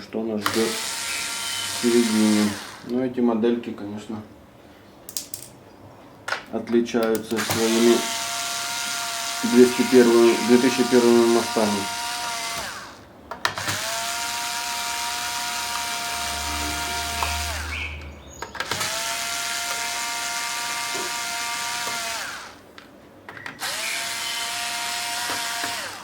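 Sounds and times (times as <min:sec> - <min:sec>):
electric screwdriver whine: 0:00.5 - 0:02.9, 0:07.4 - 0:17.8, 0:18.6 - 0:22.6, 0:23.6 - 0:26.0.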